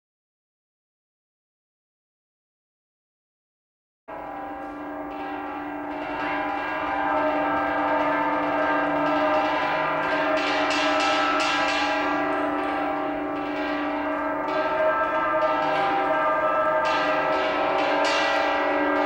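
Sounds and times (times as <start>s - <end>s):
bell-like metallic ringing: 4.1s - 19.0s.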